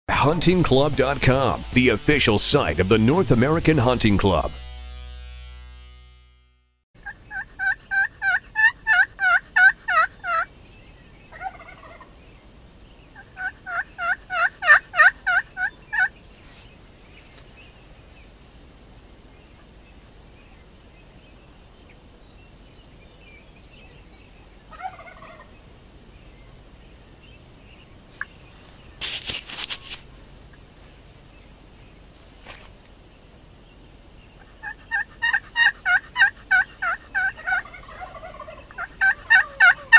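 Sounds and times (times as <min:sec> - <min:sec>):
turkeys calling: 0:07.0 - 0:10.5, 0:11.3 - 0:12.2, 0:13.2 - 0:16.1, 0:24.7 - 0:25.5, 0:34.4 - 0:39.9.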